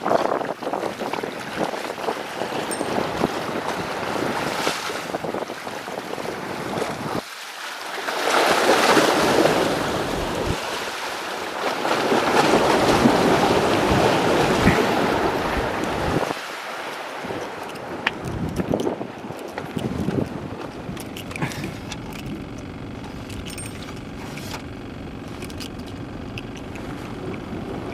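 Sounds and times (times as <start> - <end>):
wind on microphone: 0.0 - 7.2, 9.2 - 10.7, 12.4 - 16.4, 17.2 - 24.6
surf washing: 0.0 - 27.9.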